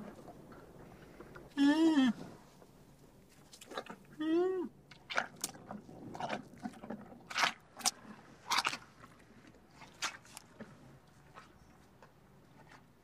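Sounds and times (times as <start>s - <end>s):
rhinoceros chewing grass: 5.0s - 13.0s.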